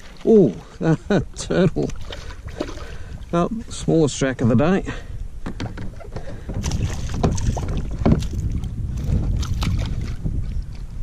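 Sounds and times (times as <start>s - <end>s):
wind and water rumble: 0.0s - 11.0s
knocks and bumps on kayak: 5.4s - 10.6s.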